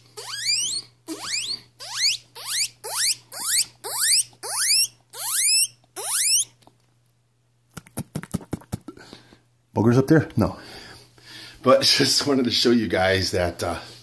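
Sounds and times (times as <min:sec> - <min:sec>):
man whistling guinea pig calls: 0:00.2 - 0:06.5.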